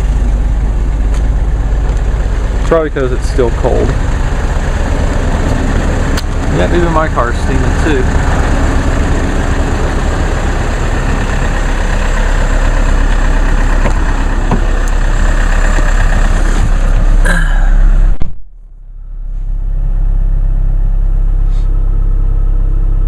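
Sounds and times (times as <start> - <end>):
diesel car engine idling: 0.0 - 23.0
rushing noise: 3.9 - 18.2.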